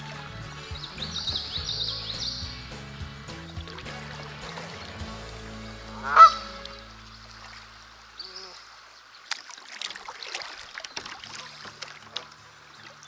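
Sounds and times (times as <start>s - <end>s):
background music: 0.0s - 8.2s, 11.3s - 13.0s
honking bird call: 0.0s - 8.7s
water splashing and trickling: 0.0s - 13.0s.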